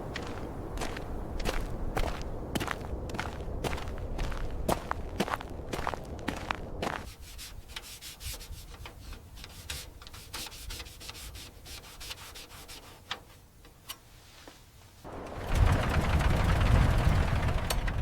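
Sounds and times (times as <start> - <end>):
quick faint rubbing strokes: 6.9 - 13.4, 14.1 - 15.1
loud low rumble: 15.1 - 18.0.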